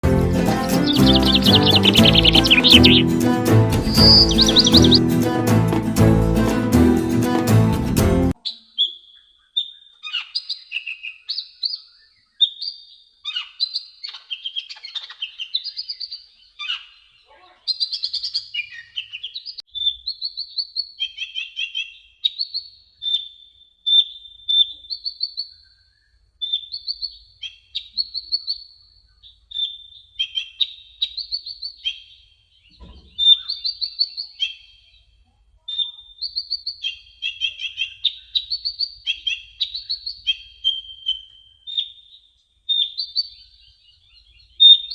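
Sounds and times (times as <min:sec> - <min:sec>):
sunbird twittering: 0:00.7 - 0:03.1, 0:03.8 - 0:05.1.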